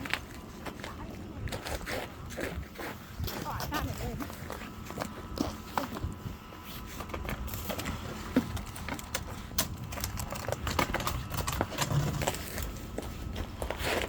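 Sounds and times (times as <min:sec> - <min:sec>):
footsteps crunching through snow: 0:00.0 - 0:08.5, 0:12.2 - 0:14.0.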